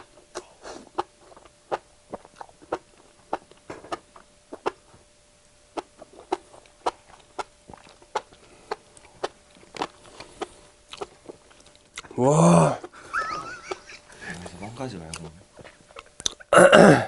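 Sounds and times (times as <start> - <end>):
person chewing and slurping: 0.0 - 4.9, 5.7 - 12.2
smacking mouth clicks: 15.1 - 16.5.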